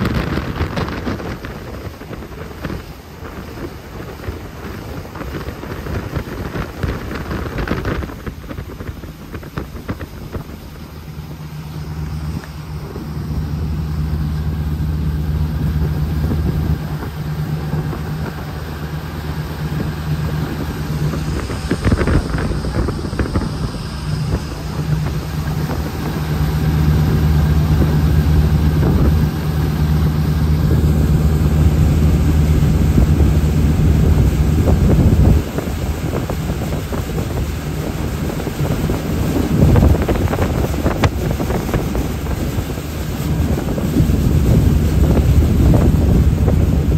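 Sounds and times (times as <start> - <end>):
boat engine droning: 0.0 - 46.9
wind on microphone: 0.0 - 46.9.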